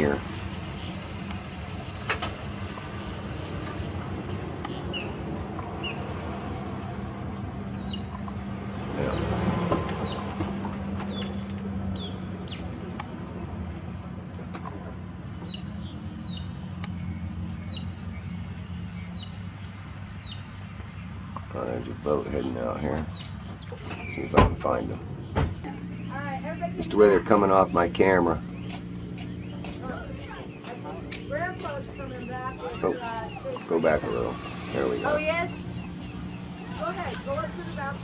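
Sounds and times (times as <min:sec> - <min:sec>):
birds chirping: 0:00.0 - 0:38.0
low mechanical hum: 0:24.9 - 0:38.0.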